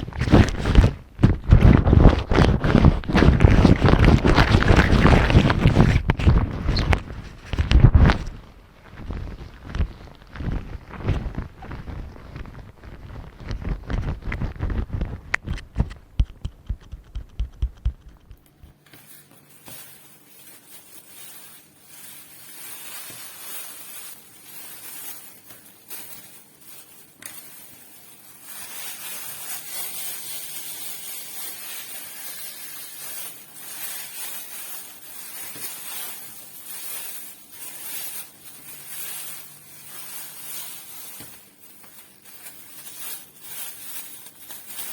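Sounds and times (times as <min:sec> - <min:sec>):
fingers thumping on microphone: 0:00.0 - 0:08.3, 0:09.6 - 0:18.6
scratching and rustling on microphone: 0:00.0 - 0:44.9.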